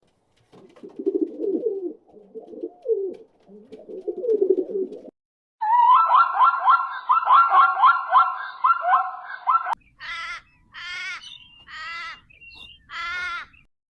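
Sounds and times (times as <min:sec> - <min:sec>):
low cooing bird calls: 0:00.8 - 0:05.1.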